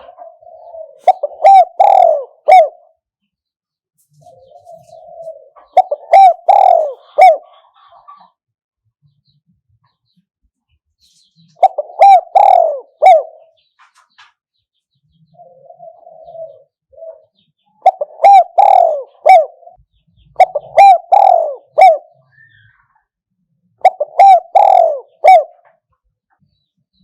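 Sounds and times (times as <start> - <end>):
dove cooing: 0.0 - 3.0, 4.2 - 8.3, 11.6 - 13.6, 15.3 - 22.7, 23.8 - 25.8.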